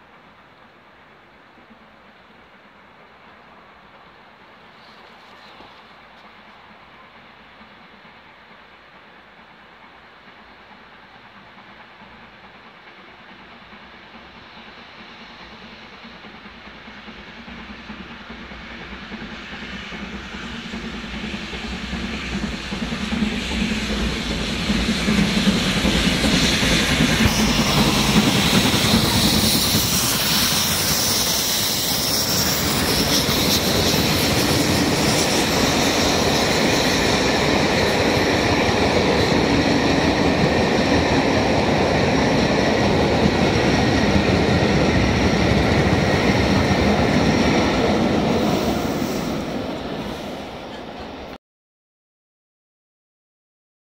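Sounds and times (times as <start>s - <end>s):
passenger train passing: 0.0s - 51.4s
wheels clacking on rails: 9.6s - 51.4s.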